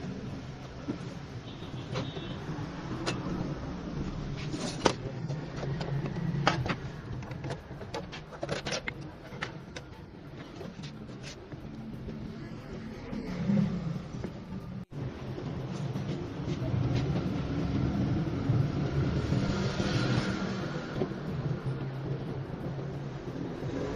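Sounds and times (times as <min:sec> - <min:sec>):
sharp clicks and knocks: 0:04.4 - 0:12.5.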